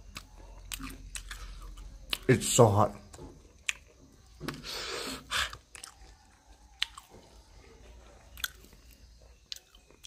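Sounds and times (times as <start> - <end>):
crunchy bites of corn: 3.1 - 7.4, 8.3 - 10.0.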